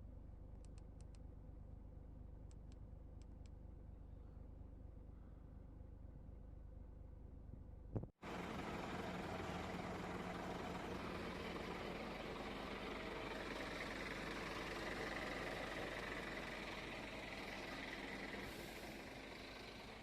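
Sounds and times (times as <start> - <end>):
truck engine running: 8.2 - 20.0.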